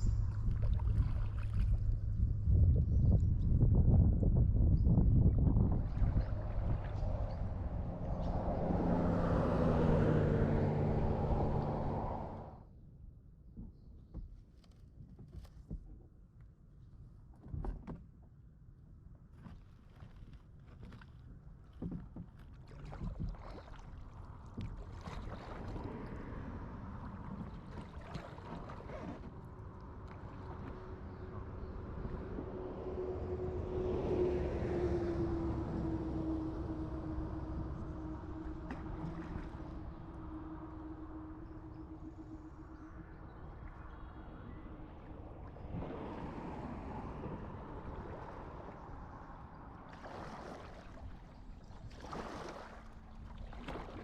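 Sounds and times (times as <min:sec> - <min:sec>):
water lapping against kayak: 0:00.0 - 0:12.6, 0:13.6 - 0:54.0
wind: 0:00.0 - 0:54.0
distant motor hum: 0:06.0 - 0:12.6, 0:29.4 - 0:49.6
paddle strokes: 0:19.3 - 0:32.6, 0:36.9 - 0:42.7, 0:49.8 - 0:54.0.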